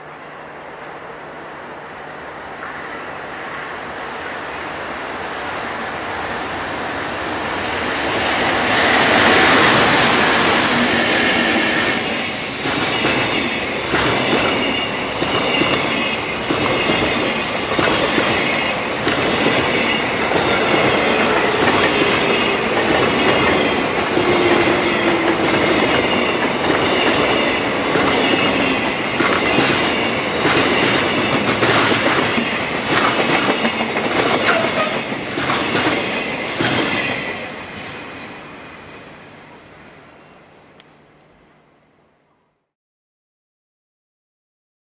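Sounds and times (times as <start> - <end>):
train wheel rumble: 2.5 - 38.6
wheels clacking over rail joints: 12.6 - 38.0
high wheel squeal: 13.3 - 31.2.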